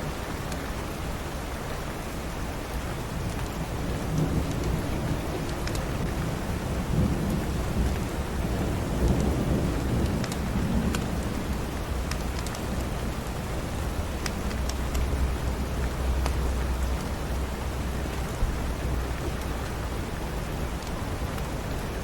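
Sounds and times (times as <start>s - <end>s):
heavy rain: 0.0s - 22.0s
thunder rumbling: 3.7s - 20.5s.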